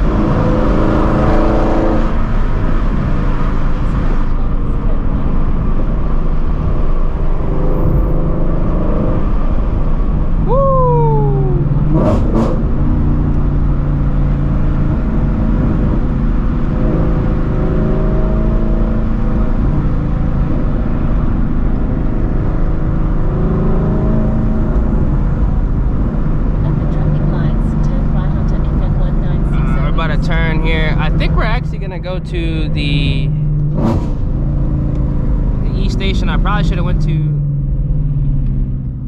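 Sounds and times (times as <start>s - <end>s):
car exhaust droning: 0.0s - 39.0s
road noise: 0.0s - 39.0s
short falling tone: 10.5s - 12.4s.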